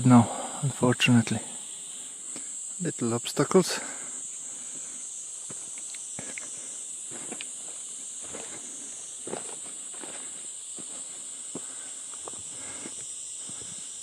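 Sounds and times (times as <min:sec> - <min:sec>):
insects chirping: 0:00.0 - 0:14.0
footsteps on forest trail: 0:04.6 - 0:13.9.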